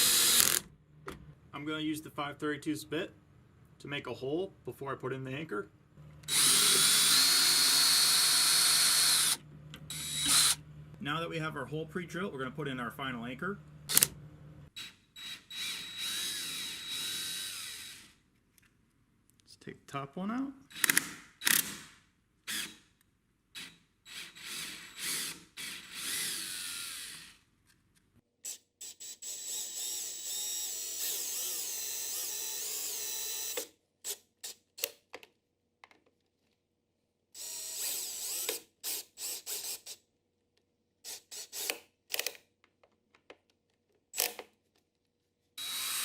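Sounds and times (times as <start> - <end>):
cordless drill running: 0.0 - 0.7, 6.2 - 10.6, 14.8 - 18.2, 22.5 - 22.8, 23.6 - 27.4, 28.4 - 33.7, 37.4 - 40.0, 41.0 - 41.8, 45.6 - 46.0.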